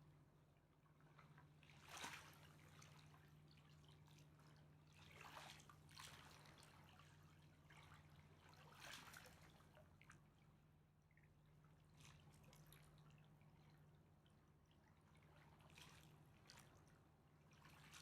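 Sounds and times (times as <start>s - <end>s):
river water lapping and dripping: 0.1s - 18.0s.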